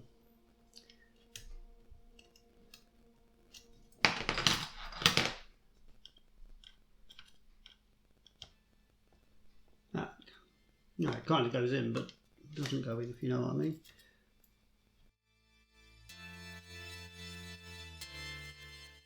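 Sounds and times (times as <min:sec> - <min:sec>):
screwdriver clicking and scraping metal: 0:00.7 - 0:02.9, 0:03.5 - 0:08.7, 0:12.0 - 0:13.1, 0:13.7 - 0:14.6.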